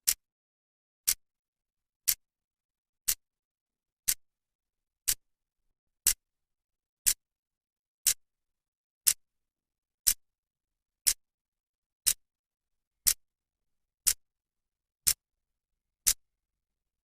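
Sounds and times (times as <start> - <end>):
clock ticking: 0.0 - 0.2, 3.0 - 3.2, 4.0 - 4.2, 5.0 - 5.2, 11.0 - 11.2, 13.0 - 13.2, 15.0 - 15.2.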